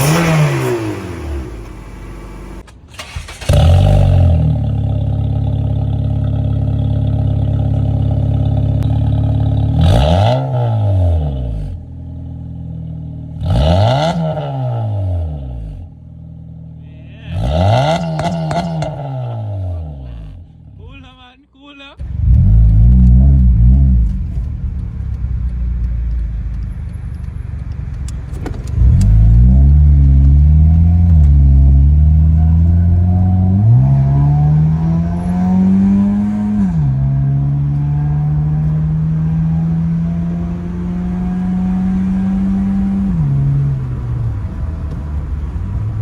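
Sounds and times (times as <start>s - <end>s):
loud car engine revving: 0.0s - 20.8s, 22.0s - 26.2s, 28.6s - 46.0s.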